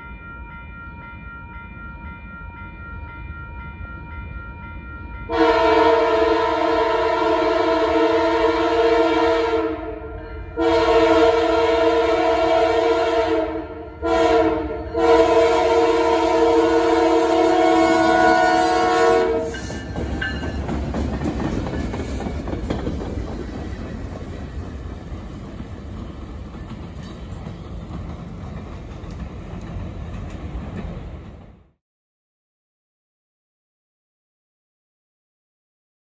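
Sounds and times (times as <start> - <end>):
train engine and wheels rumbling: 0.0 - 31.8
locomotive air horn: 5.3 - 19.9.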